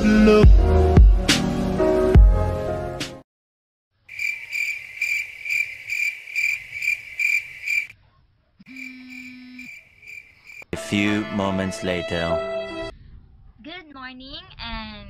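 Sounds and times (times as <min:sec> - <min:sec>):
cricket chirping: 0:04.1 - 0:07.9, 0:08.7 - 0:10.7
intro music: 0:10.8 - 0:12.9.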